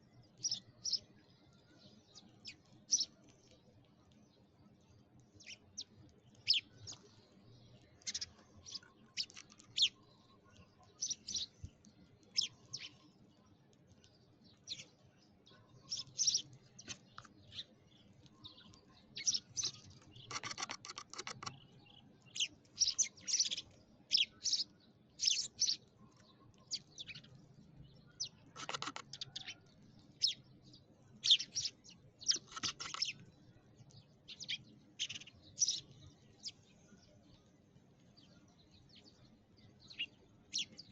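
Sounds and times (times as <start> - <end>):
sparrows chirping: 0.0 - 40.9.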